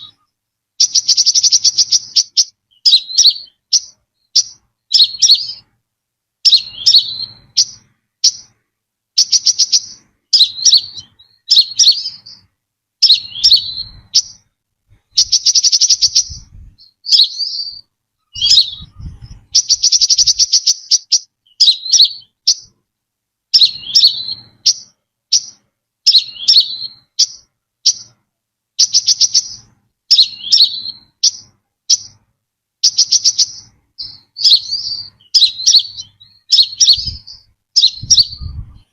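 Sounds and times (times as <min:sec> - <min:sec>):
bird calling with high chips: 0:00.0 - 0:05.7, 0:06.4 - 0:08.6, 0:09.2 - 0:22.8, 0:23.5 - 0:28.2, 0:28.8 - 0:32.2, 0:32.8 - 0:38.9
bird rattling trills: 0:15.2 - 0:17.5, 0:18.3 - 0:22.7.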